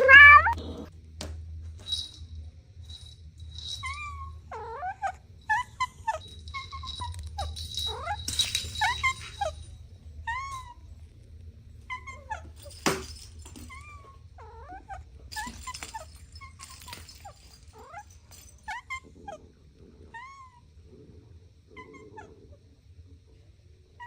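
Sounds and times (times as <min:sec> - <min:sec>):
kittens mewing: 0:00.0 - 0:00.9.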